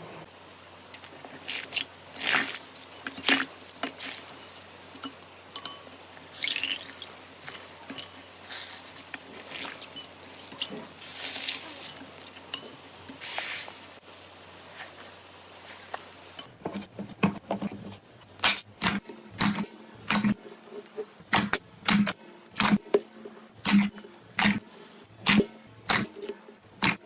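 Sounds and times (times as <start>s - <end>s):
slime squelching: 1.0s - 5.1s, 6.3s - 12.4s
short hissy bursts: 13.2s - 14.0s.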